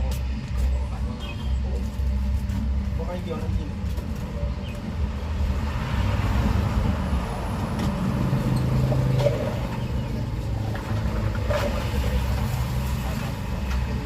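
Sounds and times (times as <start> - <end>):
road traffic rumble: 0.0 - 14.0
vehicle passing: 3.7 - 14.0.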